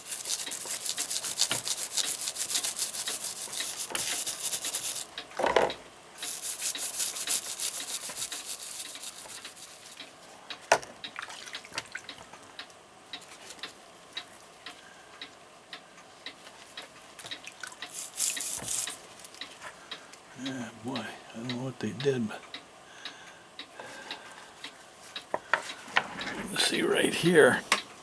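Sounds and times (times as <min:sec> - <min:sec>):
brush scrubbing metal parts: 0:00.0 - 0:05.1, 0:06.2 - 0:10.0, 0:17.8 - 0:19.4.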